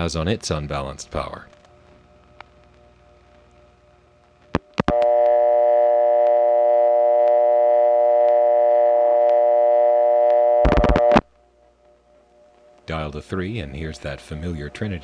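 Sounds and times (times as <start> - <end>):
telephone line clicks: 4.6 - 5.4, 10.3 - 11.2
telephone dial tone: 4.9 - 11.2.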